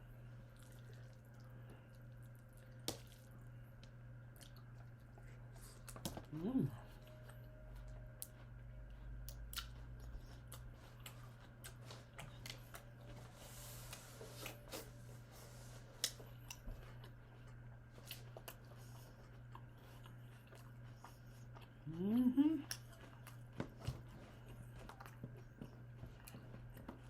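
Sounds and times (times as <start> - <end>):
steady low hum: 0.0 - 27.0
chewing: 0.4 - 6.2, 6.8 - 13.2, 15.9 - 27.0.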